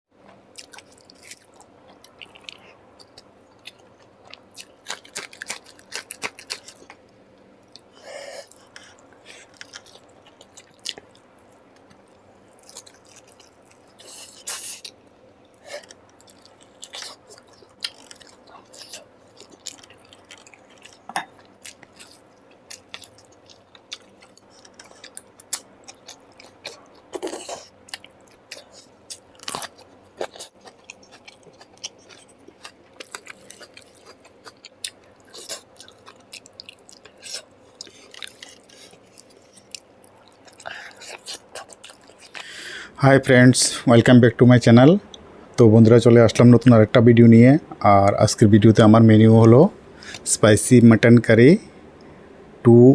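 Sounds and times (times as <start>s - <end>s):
food crunching: 0.3s - 42.6s
person chewing and biting: 0.6s - 7.0s, 7.7s - 11.2s, 11.8s - 42.5s.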